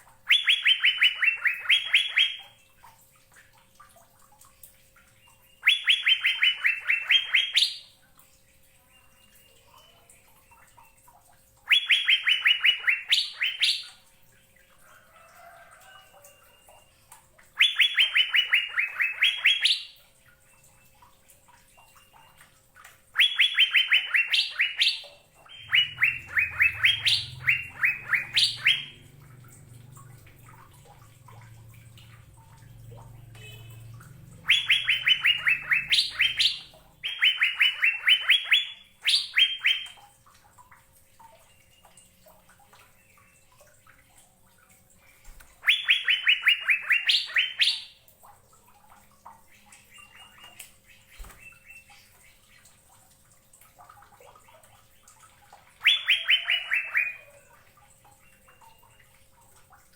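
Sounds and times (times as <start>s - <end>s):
bird singing: 0.3s - 2.4s, 5.2s - 7.9s, 11.7s - 14.0s, 17.6s - 19.9s, 23.2s - 40.0s, 45.1s - 48.0s, 55.8s - 57.4s.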